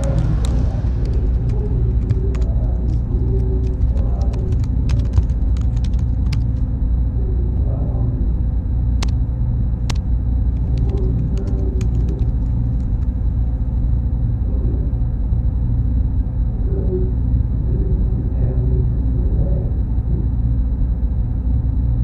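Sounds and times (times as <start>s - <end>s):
cooling fans rumbling: 0.0s - 22.0s
thin high whine: 0.0s - 22.0s
sharp clicks: 9.8s - 13.1s.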